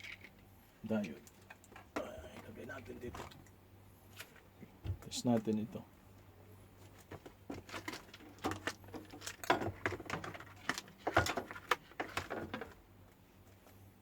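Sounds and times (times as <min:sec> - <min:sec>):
faint low hum: 0:00.0 - 0:09.5.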